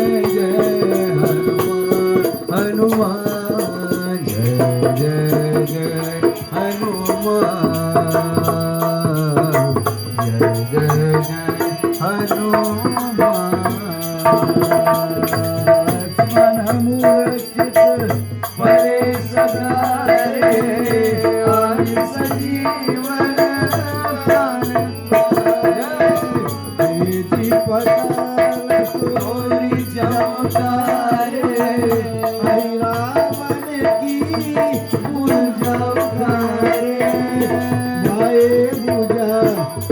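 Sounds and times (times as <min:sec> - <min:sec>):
devotional melody: 0:00.0 - 0:39.9
hand drum rhythm: 0:00.0 - 0:39.9.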